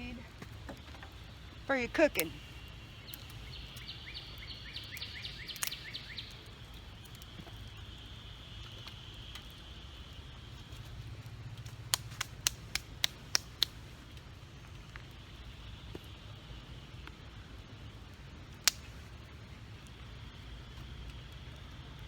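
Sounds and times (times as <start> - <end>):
sticks crackling in stove: 0.0 - 22.0
bird chirping: 1.1 - 9.3.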